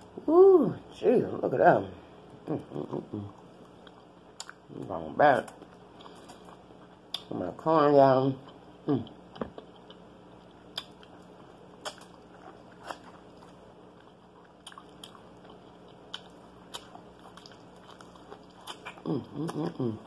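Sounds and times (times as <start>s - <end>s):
faint steady hum: 0.0s - 20.0s
biting and chewing corn: 9.4s - 19.8s.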